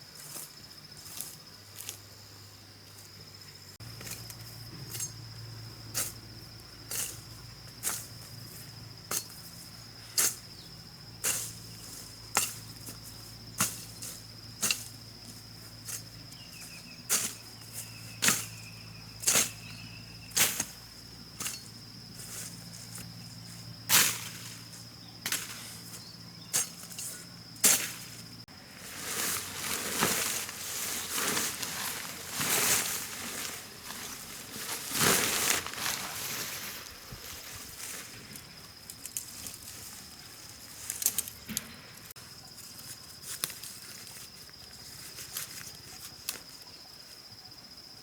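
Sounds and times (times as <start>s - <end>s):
high-pitched insect drone: 3.0s - 23.8s.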